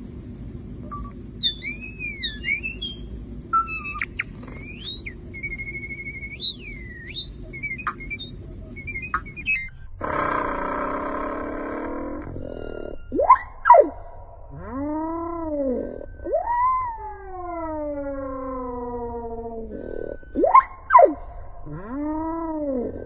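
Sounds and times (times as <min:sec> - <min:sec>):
low steady rumble: 0:00.0 - 0:23.0
bird whistled calls: 0:00.9 - 0:09.9, 0:12.4 - 0:14.3, 0:19.7 - 0:21.5
bird harsh buzzing call: 0:01.4 - 0:14.0.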